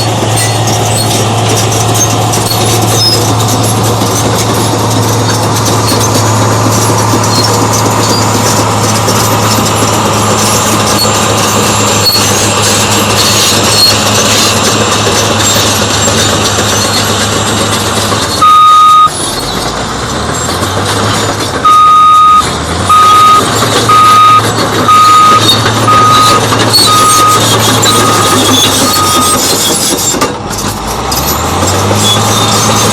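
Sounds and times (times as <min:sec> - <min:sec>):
bulldozer diesel engine running: 0:00.0 - 0:32.9
reversing alarm beeping: 0:18.4 - 0:19.1, 0:21.6 - 0:29.5
single high beep: 0:18.4 - 0:19.1, 0:21.7 - 0:26.4.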